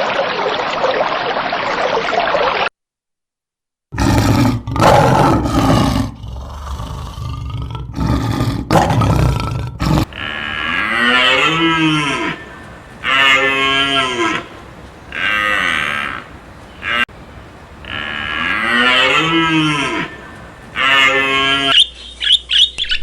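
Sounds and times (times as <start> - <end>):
cattle mooing: 9.9 - 21.8.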